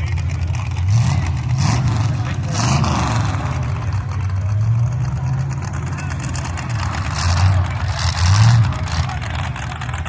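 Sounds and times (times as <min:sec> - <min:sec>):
car engines idling loudly: 0:00.0 - 0:10.0.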